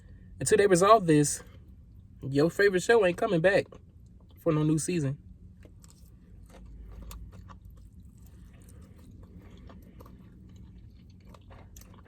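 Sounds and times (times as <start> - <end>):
steady low hum: 0.0 - 12.0
person chewing food: 5.4 - 12.0.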